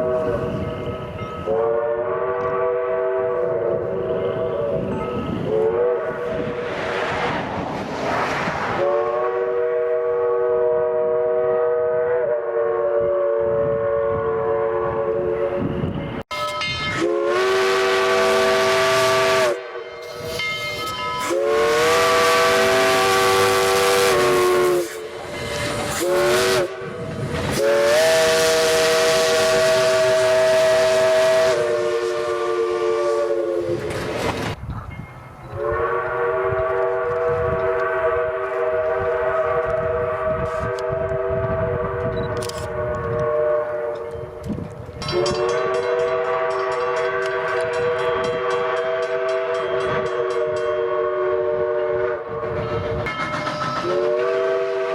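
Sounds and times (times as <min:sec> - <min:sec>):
steam locomotive chime whistle: 0:00.0 - 0:06.7, 0:08.8 - 0:34.1, 0:34.9 - 0:54.9
steam hissing: 0:17.0 - 0:34.6.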